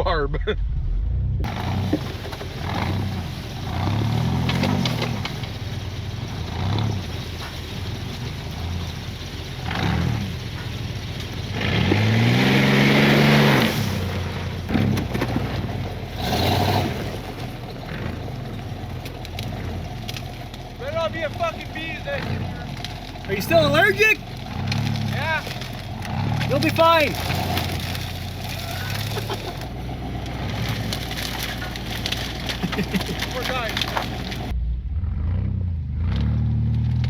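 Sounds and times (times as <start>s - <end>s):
truck engine revving: 0.0s - 37.0s.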